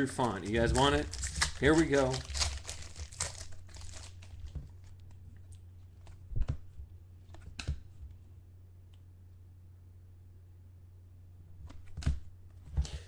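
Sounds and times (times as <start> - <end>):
trading cards clicking and rustling: 0.0 - 5.1
steady low hum: 0.0 - 13.0.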